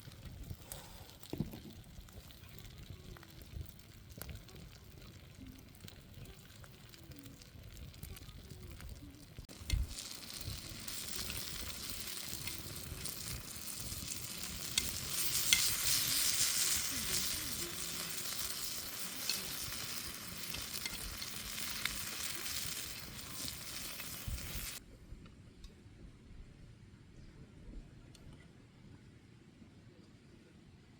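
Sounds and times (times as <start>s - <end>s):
food sizzling in a pan: 0.0s - 24.8s.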